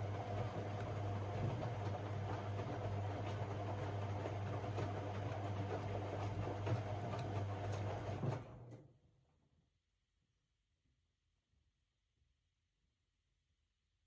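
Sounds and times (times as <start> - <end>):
washing machine humming: 0.0 - 8.8.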